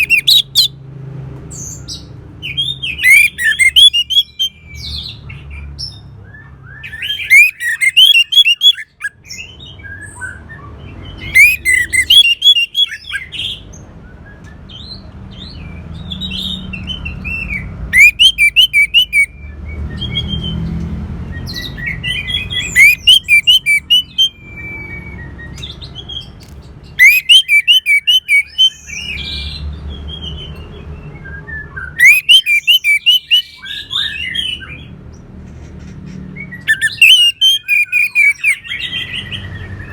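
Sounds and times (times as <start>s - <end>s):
thrush song whistled notes: 18.0s - 20.6s, 21.8s - 25.6s, 27.0s - 28.8s, 31.2s - 33.6s, 36.6s - 38.6s.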